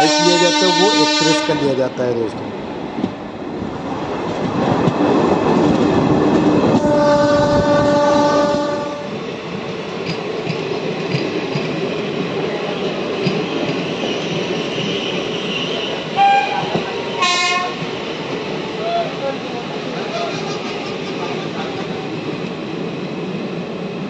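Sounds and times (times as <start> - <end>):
train horn: 0.0 - 1.8, 6.6 - 9.2, 16.2 - 17.8
train rumbling on rails: 0.0 - 24.0.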